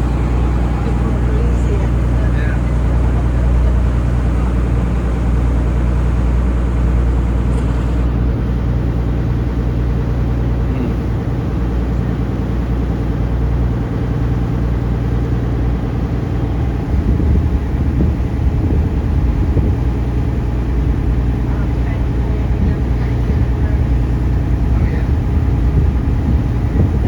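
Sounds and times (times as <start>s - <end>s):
boat engine droning: 0.0s - 27.0s.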